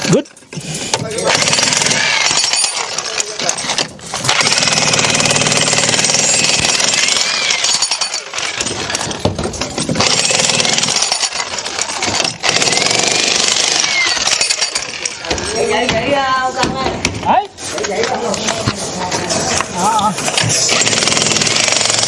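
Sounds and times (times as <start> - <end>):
jackhammer hammering: 1.2 - 15.4, 20.6 - 22.0.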